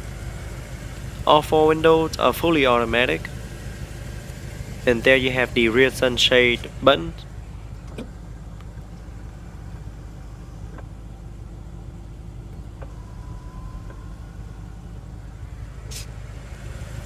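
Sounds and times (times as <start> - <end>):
car engine idling: 0.0 - 17.0
short hiss: 15.9 - 16.2.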